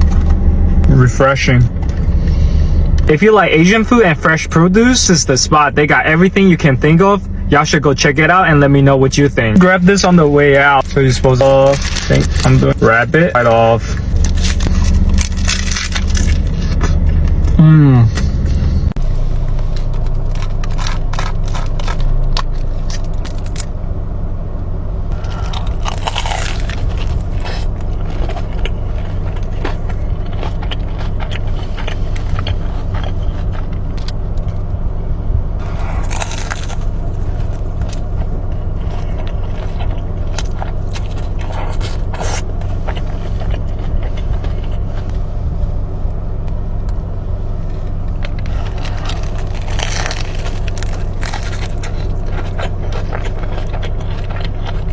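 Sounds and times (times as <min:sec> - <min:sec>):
car engine hum: 0:00.0 - 0:54.9
crunchy chewing: 0:09.9 - 0:23.7, 0:25.1 - 0:34.7, 0:35.6 - 0:45.4, 0:47.6 - 0:54.9.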